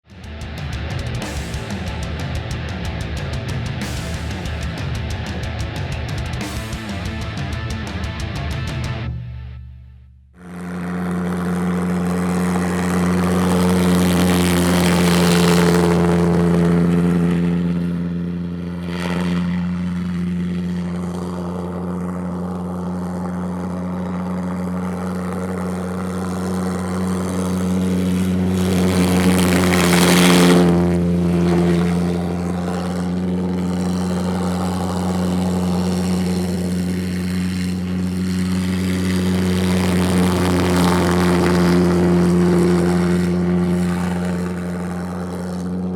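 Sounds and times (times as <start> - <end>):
pulsejet engines droning: 0.1 - 9.7, 10.4 - 45.9
kart passing with rushing hiss: 10.4 - 45.9.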